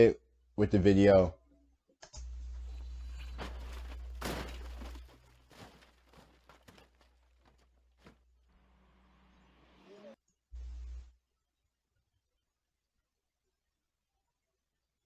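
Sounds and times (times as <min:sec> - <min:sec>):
short rustle: 0:03.1 - 0:08.2.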